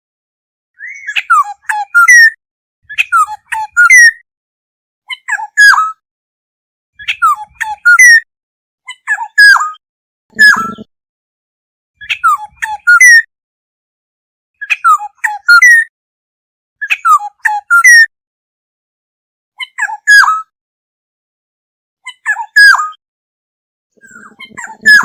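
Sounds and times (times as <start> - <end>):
bird whistling fluty calls: 0.8 - 4.2, 7.0 - 8.2, 9.4 - 10.9, 14.6 - 15.9, 16.8 - 18.1, 20.1 - 20.5, 24.0 - 25.0.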